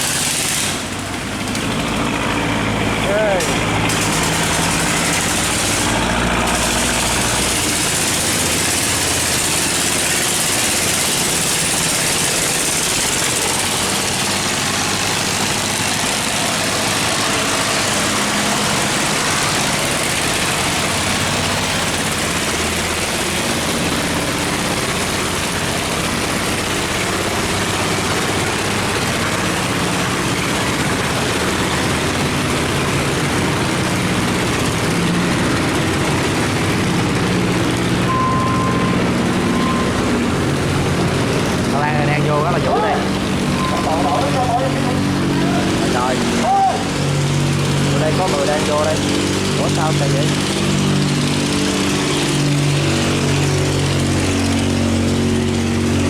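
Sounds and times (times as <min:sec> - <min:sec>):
water rushing through sluice gate: 0:00.0 - 0:37.9
boat engines running: 0:00.0 - 0:56.0.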